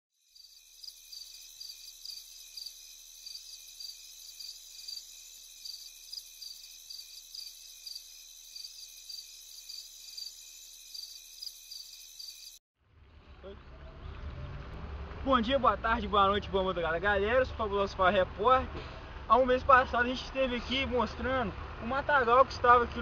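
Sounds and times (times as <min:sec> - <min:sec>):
insects chirping: 0:00.2 - 0:12.6.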